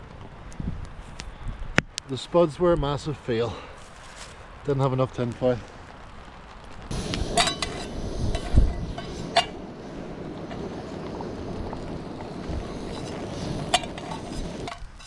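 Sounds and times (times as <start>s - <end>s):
wind on microphone: 6.8s - 15.0s.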